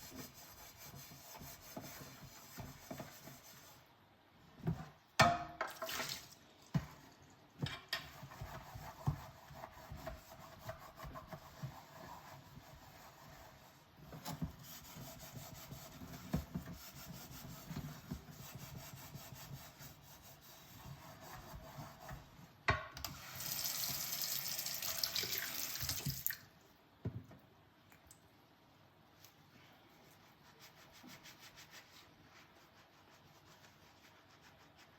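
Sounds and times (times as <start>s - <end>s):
tap water running: 23.1s - 26.5s.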